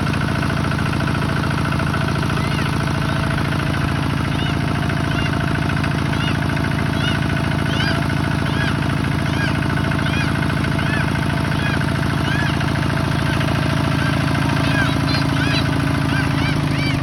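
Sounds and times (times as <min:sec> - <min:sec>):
tractor diesel engine running: 0:00.0 - 0:17.0
high rising and falling chirp: 0:02.3 - 0:03.4, 0:04.3 - 0:05.4, 0:06.1 - 0:17.0.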